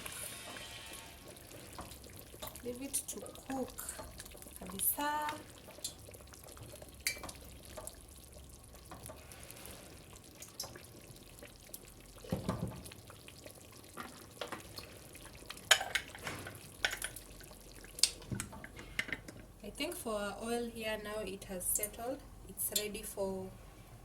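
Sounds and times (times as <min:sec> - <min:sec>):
pots and utensils clinking: 0:15.6 - 0:17.2.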